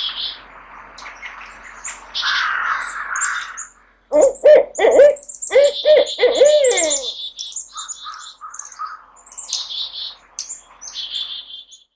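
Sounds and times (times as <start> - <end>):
songbirds chirping: 0.0 - 11.9
owl hooting: 2.1 - 9.1.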